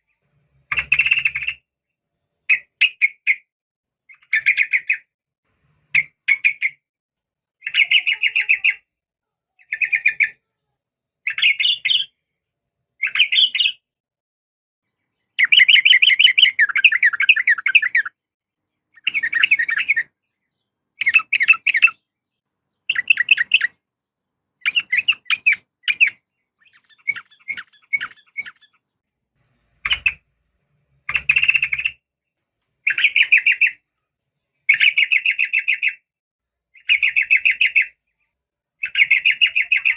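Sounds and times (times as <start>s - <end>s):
bird chattering calls: 15.4s - 18.1s, 19.0s - 20.1s, 21.0s - 22.0s, 22.9s - 23.7s, 24.6s - 28.8s.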